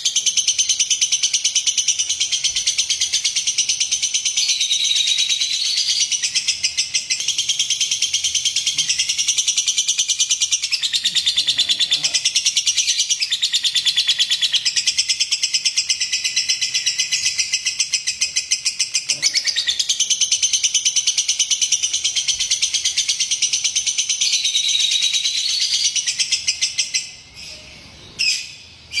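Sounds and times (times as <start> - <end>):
lovebird chattering trill: 0.0 - 29.0
lovebird squawks: 15.8 - 20.6.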